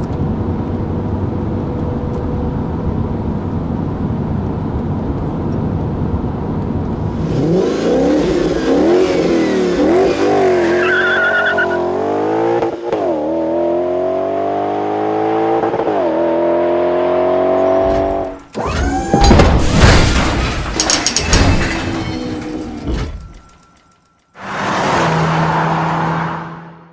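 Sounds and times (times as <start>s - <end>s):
car engine revving and accelerating: 7.0s - 18.7s, 24.4s - 26.9s
short wavering high squeal: 10.6s - 11.9s.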